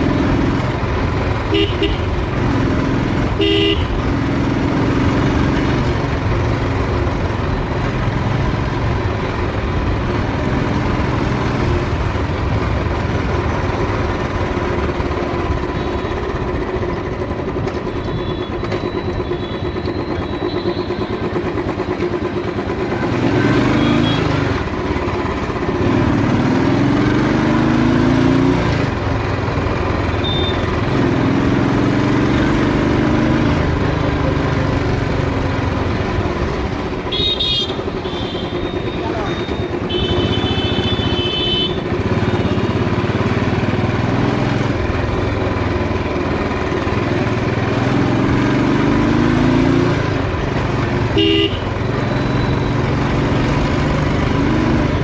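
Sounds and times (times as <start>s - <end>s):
motorcycle engine running: 0.0s - 55.0s
vehicle horns tooting: 1.5s - 2.2s, 3.4s - 4.0s, 23.6s - 24.4s, 30.1s - 30.8s, 37.0s - 42.9s, 51.2s - 52.7s.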